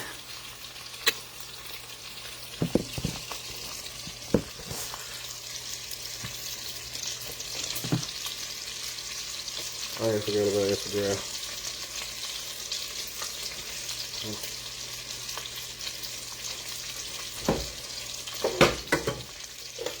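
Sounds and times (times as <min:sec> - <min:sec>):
meat sizzling in a frying pan: 0:00.0 - 0:20.0
knock: 0:02.6 - 0:03.2, 0:04.3 - 0:04.6, 0:07.8 - 0:08.1.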